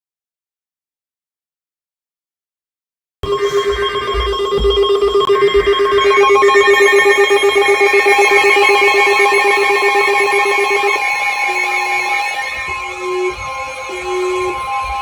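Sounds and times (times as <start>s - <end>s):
low rapidly pulsing beep: 3.2s - 15.0s
steady alert tone: 3.2s - 15.0s
weather radio alarm beeps: 3.2s - 15.0s.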